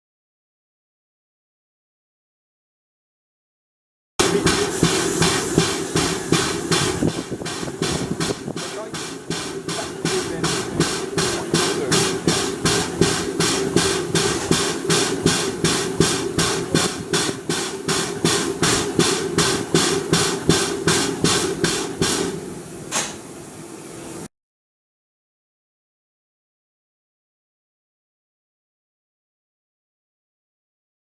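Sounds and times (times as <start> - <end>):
sharp steam burst: 4.2 - 24.3
steam locomotive exhaust beats: 4.2 - 24.3.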